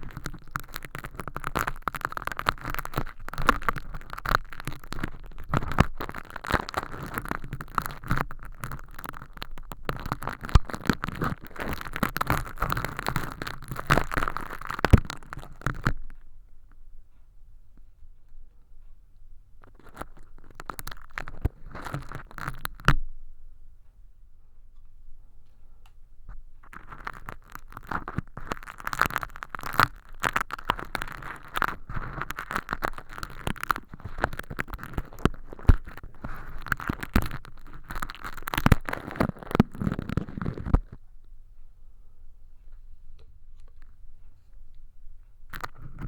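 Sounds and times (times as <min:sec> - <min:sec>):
crackling and tearing: 0:00.0 - 0:16.2, 0:19.6 - 0:23.0, 0:26.6 - 0:41.0, 0:45.5 - 0:46.0
tweezers peeling crinkly film: 0:00.0 - 0:16.2, 0:19.6 - 0:23.0, 0:26.6 - 0:41.0, 0:45.5 - 0:46.0.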